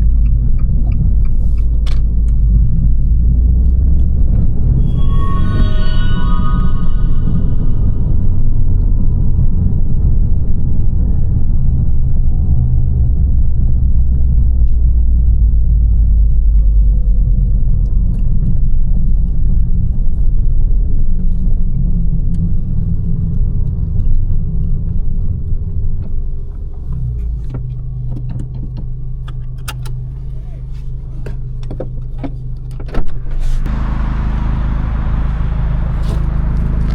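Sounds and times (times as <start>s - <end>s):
car engine rumbling: 0.0s - 36.9s
car engine idling: 33.7s - 36.9s.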